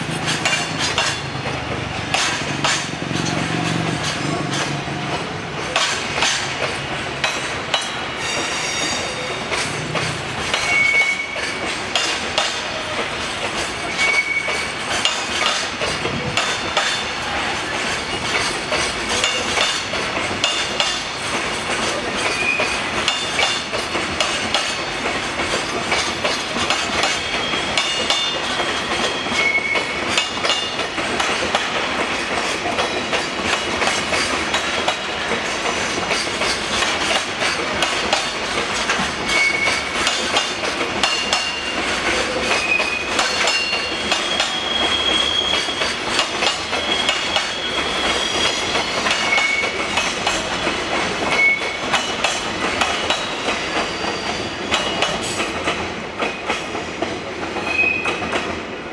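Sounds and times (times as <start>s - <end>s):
wheels clacking over rail joints: 0.0s - 58.7s
high-pitched wheel squeals: 10.6s - 11.6s, 13.8s - 14.8s, 27.2s - 30.0s, 39.3s - 40.0s, 42.6s - 46.0s, 46.7s - 49.8s, 57.6s - 58.2s.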